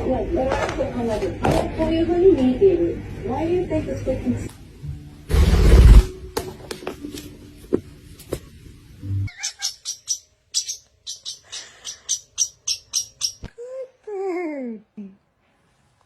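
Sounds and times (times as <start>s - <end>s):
parrot chirping: 9.2s - 13.5s.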